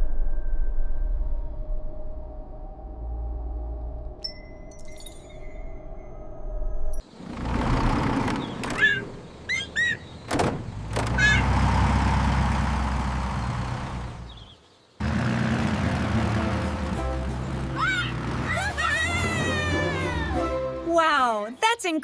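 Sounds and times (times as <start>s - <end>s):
chirping squeaks: 7.8s - 10.3s
heavy mechanical rumble: 15.0s - 20.3s.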